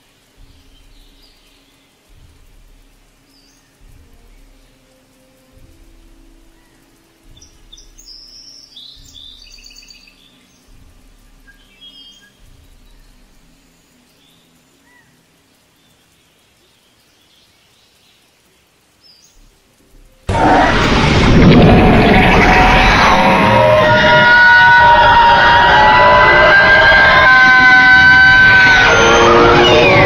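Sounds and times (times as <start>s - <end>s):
soft low thuds: 2.1s - 3.1s.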